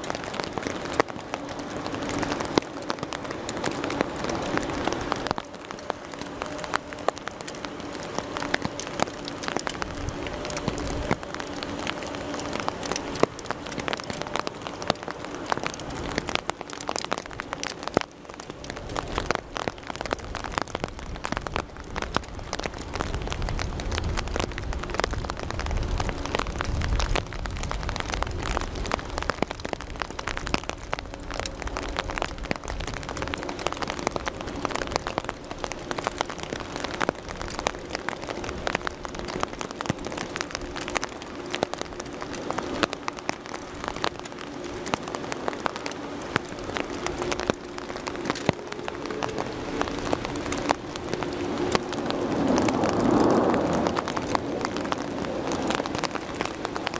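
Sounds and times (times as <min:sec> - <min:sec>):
low rumble: 0:00.0 - 0:56.9
rain drops hitting close: 0:00.0 - 0:56.9
rain hiss: 0:00.0 - 0:56.9.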